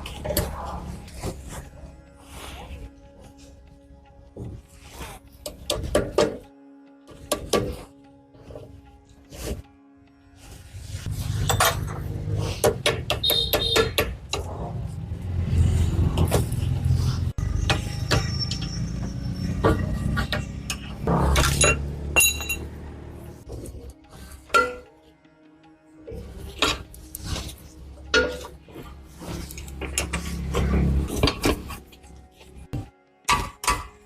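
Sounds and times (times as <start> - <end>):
metal tools clinking: 11.3 - 12.2, 19.5 - 22.8.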